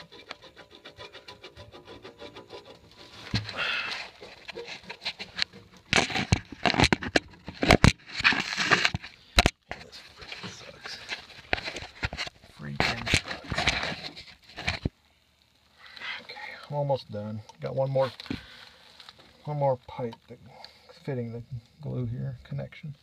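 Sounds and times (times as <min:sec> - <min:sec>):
sharp clicks and knocks: 0:00.0 - 0:09.8.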